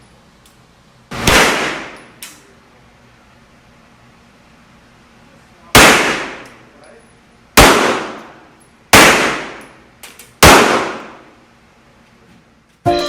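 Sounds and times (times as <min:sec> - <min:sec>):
gunshots reverberating indoors: 0:01.1 - 0:02.2, 0:05.8 - 0:06.6, 0:07.6 - 0:08.4, 0:09.0 - 0:09.8, 0:10.4 - 0:11.4.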